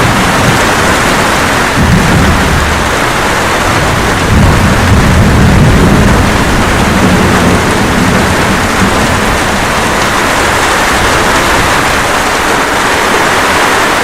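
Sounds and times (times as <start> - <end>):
light rain: 0.0 - 14.0
thunder rumbling: 0.0 - 14.0.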